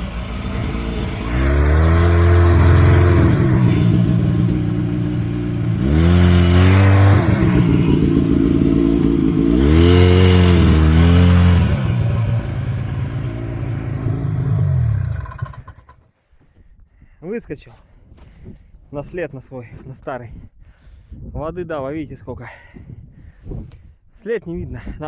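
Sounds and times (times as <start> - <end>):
snowmobile engine revving: 0.0 - 15.8.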